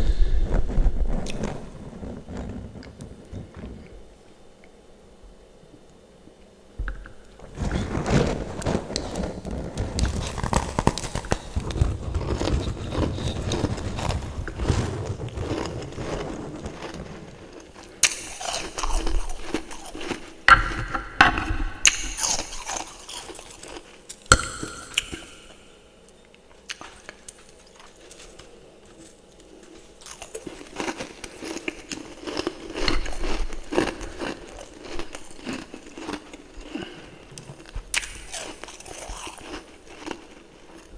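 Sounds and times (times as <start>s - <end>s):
frost crunching in mouth: 7.0s - 20.8s, 21.8s - 25.6s, 26.6s - 40.9s.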